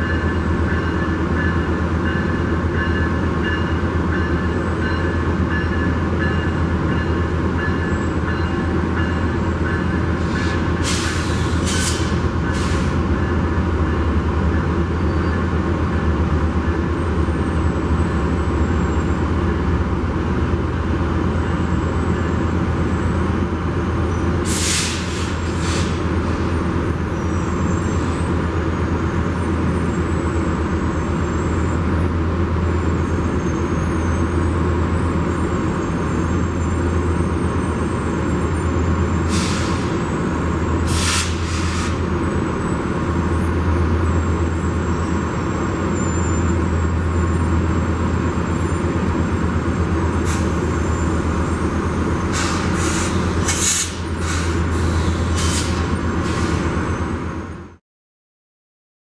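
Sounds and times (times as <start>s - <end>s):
diesel train rumble: 0.0s - 57.8s
compressed air hisses: 40.9s - 42.0s, 52.3s - 55.8s.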